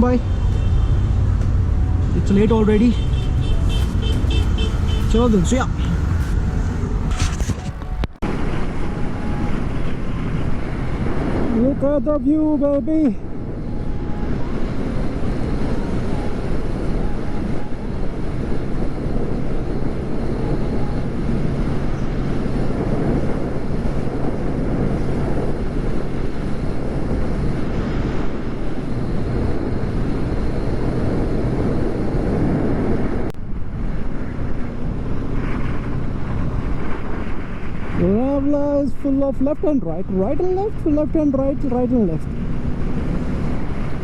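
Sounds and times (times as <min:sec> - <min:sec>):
motorcycle engine running: 0:00.0 - 0:08.0
wind rush on microphone: 0:00.0 - 0:44.0.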